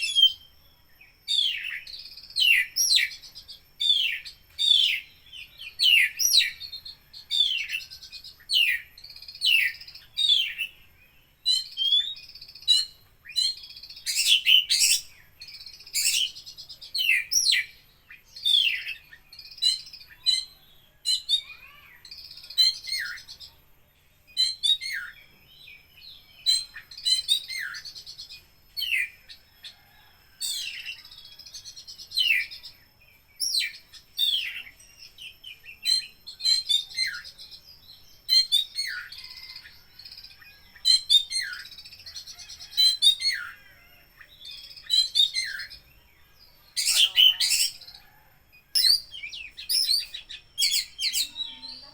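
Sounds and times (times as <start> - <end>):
songbird whistling and clicking: 48.7 - 51.4.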